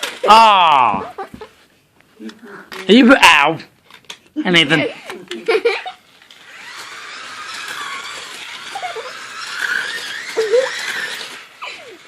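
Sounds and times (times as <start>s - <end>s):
small electric motors whirring: 5.3s - 12.0s.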